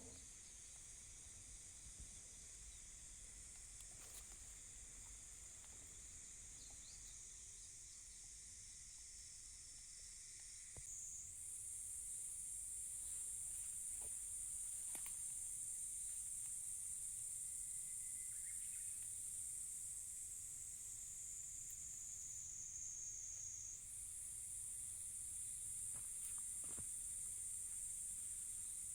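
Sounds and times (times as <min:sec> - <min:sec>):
higher insect song: 0:00.0 - 0:28.9
faint clicks: 0:14.8 - 0:15.2.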